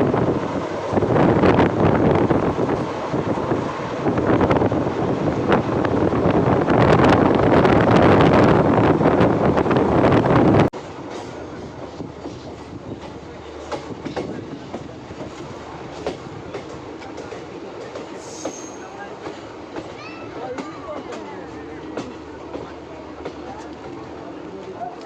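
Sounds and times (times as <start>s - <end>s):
rush of wind and rolling noise: 0.0s - 10.8s
train wheels clicking over rail joints: 10.8s - 25.0s.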